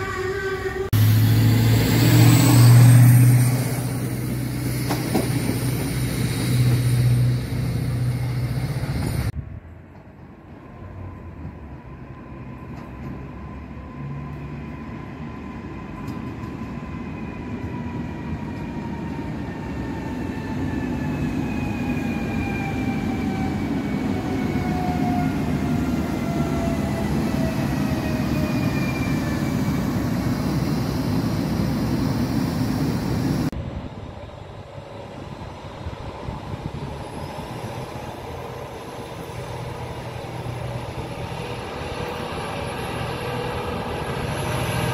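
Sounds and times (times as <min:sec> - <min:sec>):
train motor whine: 0:00.0 - 0:09.3
train wheels rumbling: 0:00.0 - 0:44.9.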